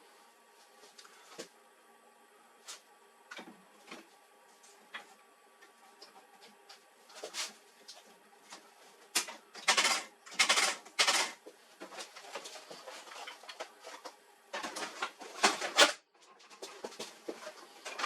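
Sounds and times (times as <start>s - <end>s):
rustling and scraping noises: 3.8s - 9.4s, 11.1s - 18.0s.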